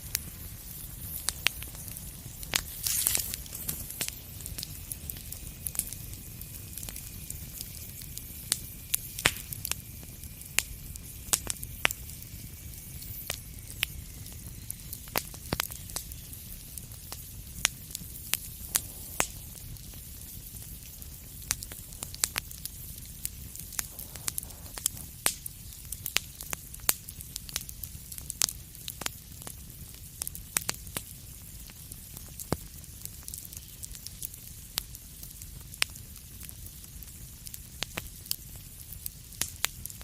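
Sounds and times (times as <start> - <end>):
wood fire crackling: 0.0 - 40.0
thin hissing whistle: 2.5 - 16.7, 18.1 - 21.1, 23.7 - 24.8.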